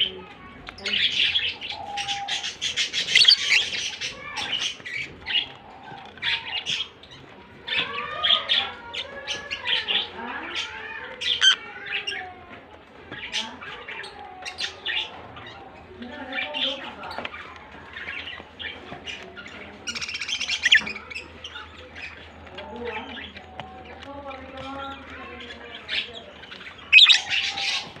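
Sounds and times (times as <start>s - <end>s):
lovebirds chirping: 0.0s - 12.3s, 13.2s - 28.0s
warbling squawks: 3.0s - 3.7s, 19.9s - 21.1s.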